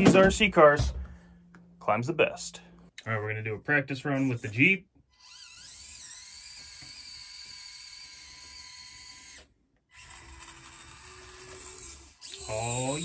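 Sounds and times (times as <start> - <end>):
electric motor and gears whining: 4.2 - 13.0.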